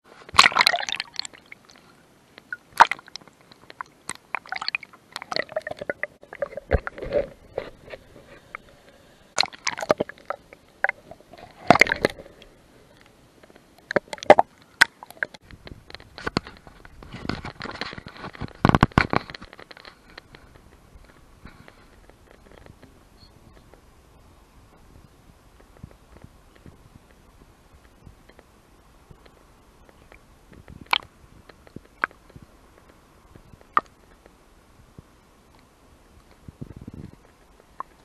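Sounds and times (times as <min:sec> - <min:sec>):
water splashing: 0:00.2 - 0:08.6, 0:09.3 - 0:13.1, 0:13.8 - 0:15.4.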